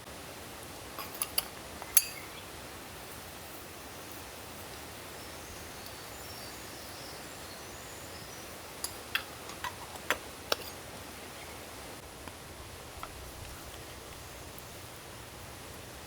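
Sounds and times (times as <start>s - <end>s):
rain in forest: 0.0s - 16.0s
stream flowing: 0.1s - 16.0s
light sharp clicks and clinks: 1.0s - 2.4s, 8.8s - 11.6s
faint bird chirps: 4.8s - 9.4s.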